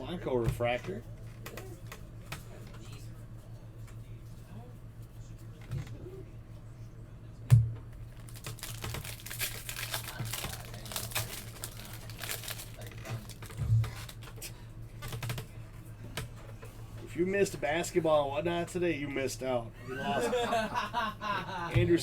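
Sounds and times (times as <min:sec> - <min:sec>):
wrappers crinkling and tearing: 0:08.0 - 0:14.4.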